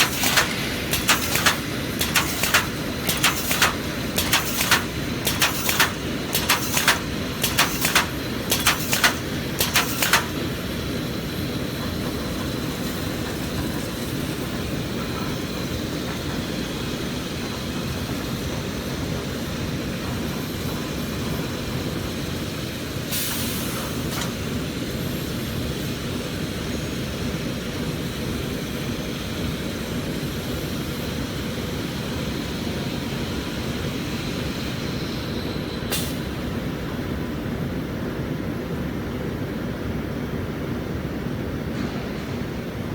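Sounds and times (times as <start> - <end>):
sharp mechanical clacks: 0.0 - 10.6
machine humming and rumbling: 0.0 - 10.7.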